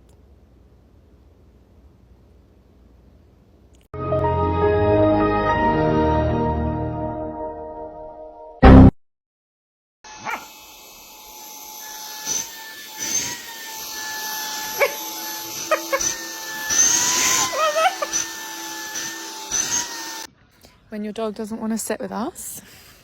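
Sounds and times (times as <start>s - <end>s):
dog vocalising: 15.7s - 16.2s.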